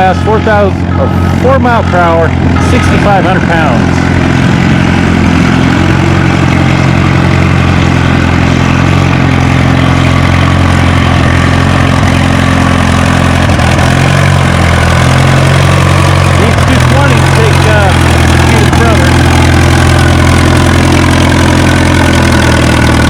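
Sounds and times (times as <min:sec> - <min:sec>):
tractor engine under heavy load: 0:00.0 - 0:23.0.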